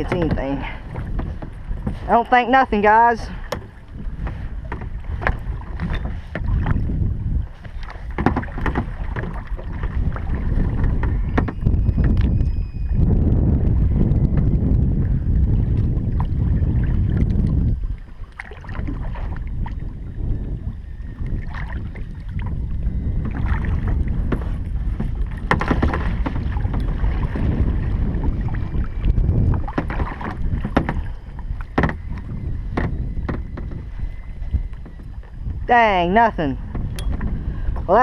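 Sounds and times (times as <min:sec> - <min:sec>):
wind buffeting microphone: 0:00.0 - 0:38.0
knocks: 0:31.8 - 0:32.0.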